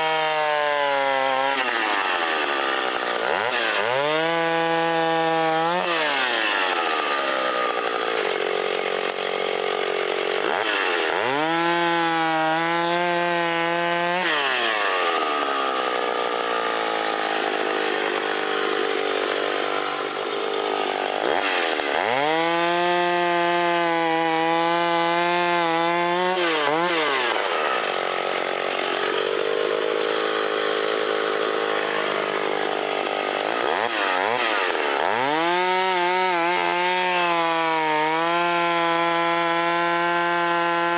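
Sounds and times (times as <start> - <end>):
chainsaw cutting log: 0.0 - 40.9.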